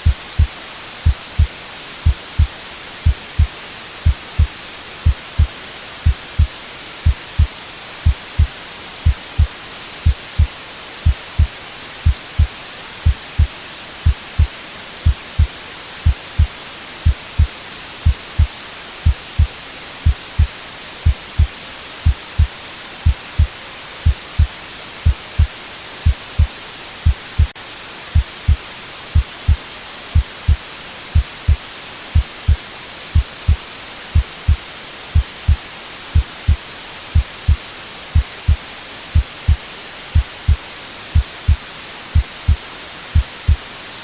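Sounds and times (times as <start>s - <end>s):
heartbeat thumps: 0.0s - 27.6s, 28.2s - 28.6s, 29.2s - 29.6s, 30.2s - 30.6s, 31.2s - 31.6s, 32.2s - 32.6s, 33.2s - 33.6s, 34.2s - 34.6s, 35.2s - 35.6s, 36.2s - 36.6s, 37.2s - 37.6s, 38.2s - 38.6s, 39.2s - 39.6s, 40.2s - 40.6s, 41.2s - 41.6s, 42.2s - 42.6s, 43.2s - 43.6s
white noise hiss: 0.0s - 44.0s.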